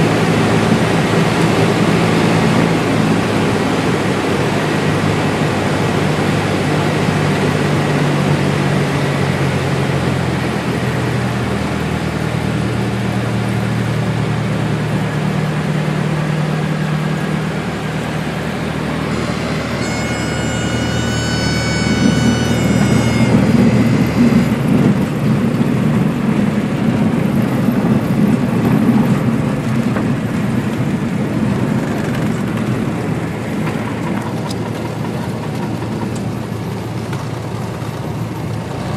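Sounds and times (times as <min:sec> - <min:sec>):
small plane engine at low power: 0:00.0 - 0:38.9
wheels rolling on runway: 0:00.0 - 0:38.9
stall warning horn: 0:17.7 - 0:26.1.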